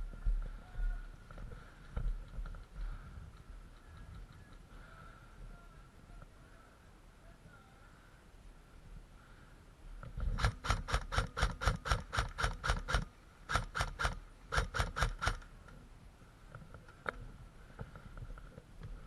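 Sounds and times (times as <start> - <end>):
airsoft rifle firing: 10.3 - 15.4.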